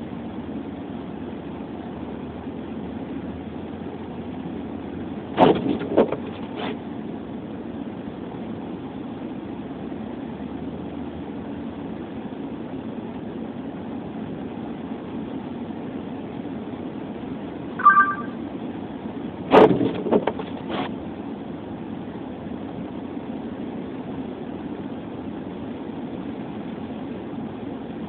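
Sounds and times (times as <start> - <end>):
two-tone beep: 17.8 - 18.4.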